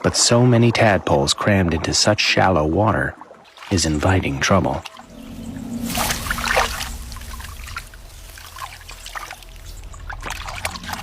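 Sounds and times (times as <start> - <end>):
shallow water trickling: 2.9 - 11.0
low steady hum: 4.9 - 11.0.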